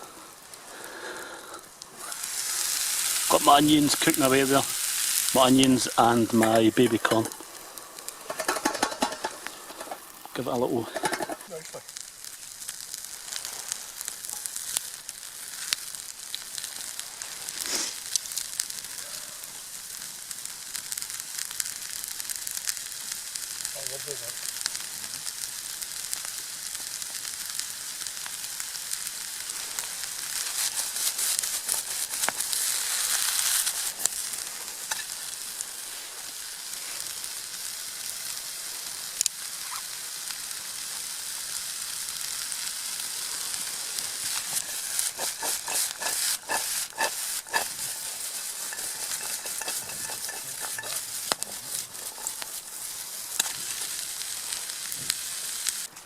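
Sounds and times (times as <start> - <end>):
vegetables sizzling in a pan: 0.0 - 56.0
utensil stirring in a pan: 2.0 - 15.8, 29.4 - 36.0, 43.6 - 55.8.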